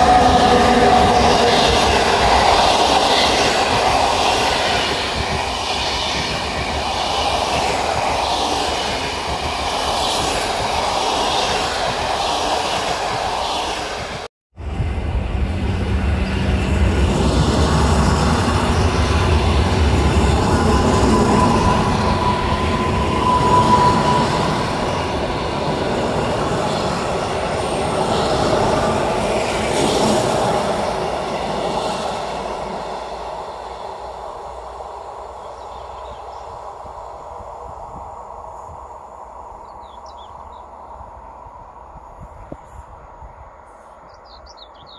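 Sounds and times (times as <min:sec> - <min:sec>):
train wheels rumbling on rails: 0:00.0 - 0:43.1
high wheel squeal: 0:17.8 - 0:30.0.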